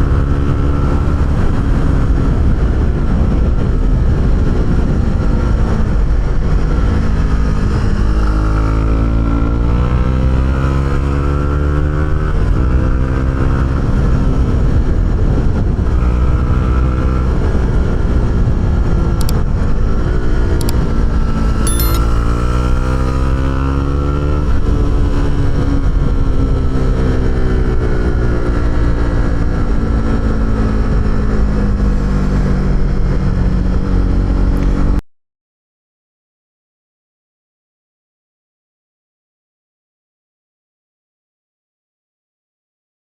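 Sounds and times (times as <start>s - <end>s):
motorcycle engine accelerating: 16.1s - 35.0s.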